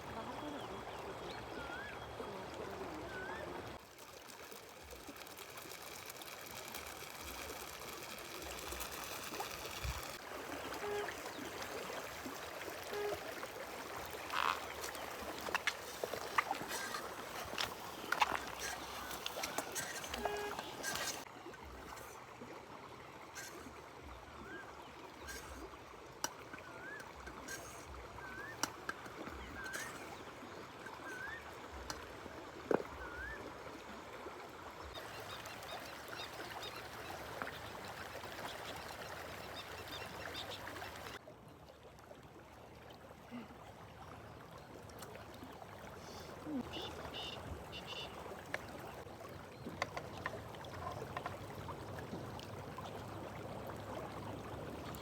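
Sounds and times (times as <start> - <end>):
river water running: 0.0 - 55.0.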